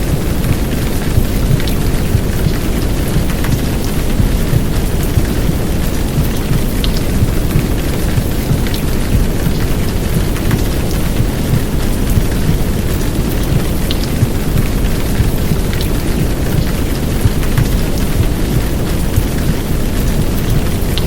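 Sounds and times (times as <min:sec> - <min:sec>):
heavy rain downpour: 0:00.0 - 0:21.0
low white noise rumble: 0:00.0 - 0:21.0.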